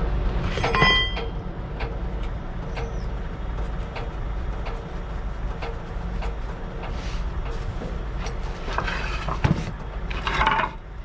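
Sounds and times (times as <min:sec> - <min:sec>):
diesel engine idling: 0:01.0 - 0:09.1.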